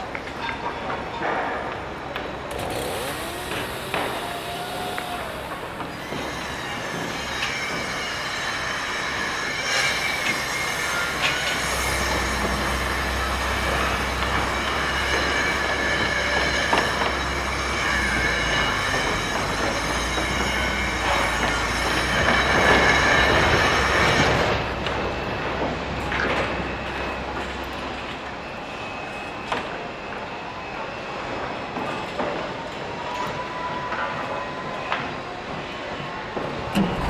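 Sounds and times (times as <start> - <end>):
heavy machinery rushing noise: 2.5 - 27.5, 36.4 - 37.0
deep rumble: 36.8 - 37.0.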